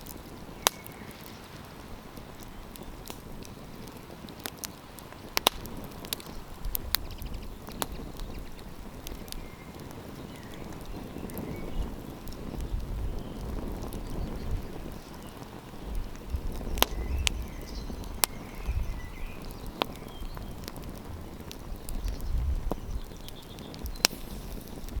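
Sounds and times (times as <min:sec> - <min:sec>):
campfire crackling pops: 0:00.0 - 0:25.0
low uneven rumble: 0:11.8 - 0:25.0.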